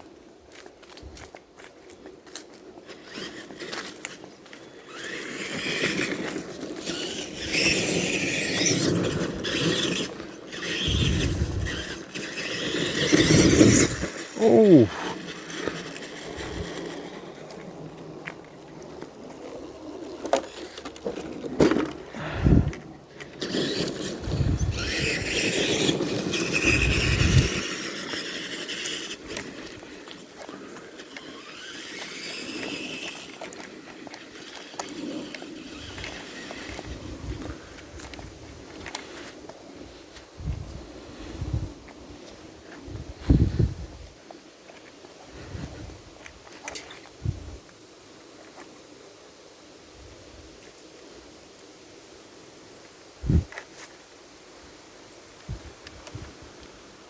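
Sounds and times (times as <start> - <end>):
crunching through brush and sticks: 0.0 - 47.2
toy truck motor whining: 3.0 - 17.2, 22.4 - 30.2, 31.0 - 37.0.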